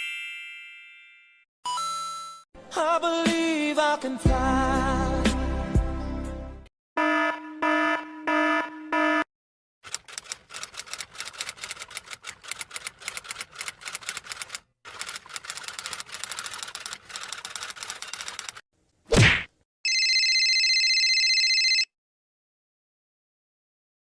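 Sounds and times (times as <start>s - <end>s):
fast keyboard typing: 9.8s - 18.6s.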